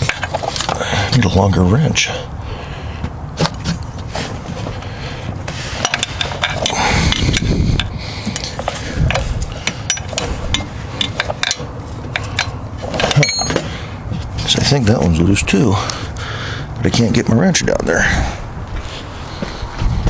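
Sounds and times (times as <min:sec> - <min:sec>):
wrench clinking against metal bolts: 0:05.8 - 0:07.9, 0:09.1 - 0:13.7.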